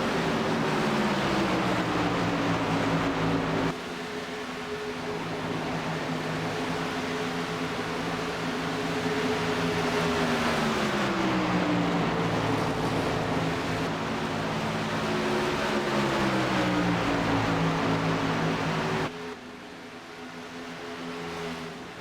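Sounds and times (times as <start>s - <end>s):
truck engines running: 0.0s - 3.7s, 5.3s - 19.1s.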